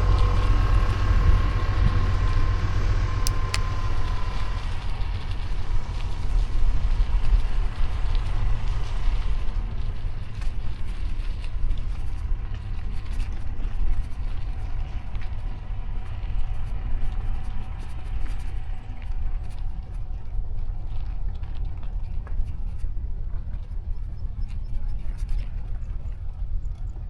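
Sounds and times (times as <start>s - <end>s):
road noise: 0.0s - 10.3s
low traffic rumble: 0.0s - 22.1s
light clicks: 3.2s - 4.4s.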